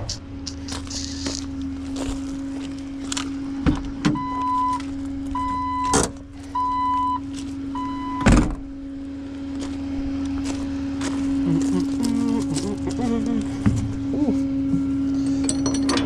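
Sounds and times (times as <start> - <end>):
steady low hum: 0.0 - 16.0
vehicle warning chime beeps: 4.1 - 8.3.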